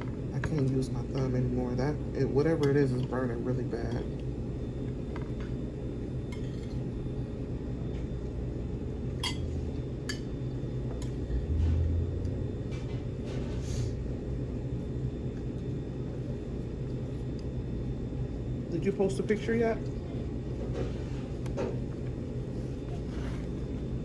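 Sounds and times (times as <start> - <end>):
low room hum: 0.0 - 24.0
tableware clinking on plates: 9.2 - 9.5.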